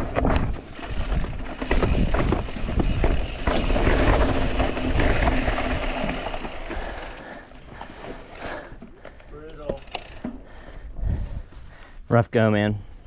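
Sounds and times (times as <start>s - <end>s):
wind rumbling on microphone: 0.0s - 7.0s, 10.8s - 11.8s
bike clattering over rocks: 0.0s - 10.4s.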